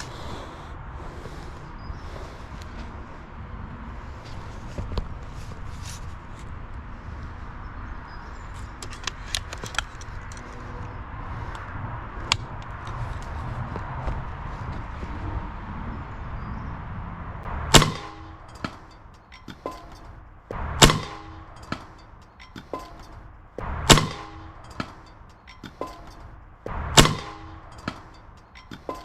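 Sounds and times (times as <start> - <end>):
air rifle shot cracking: 17.6 - 25.0, 25.7 - 28.1
small knocks: 18.2 - 20.6, 21.2 - 23.7, 24.3 - 26.8, 27.4 - 29.0.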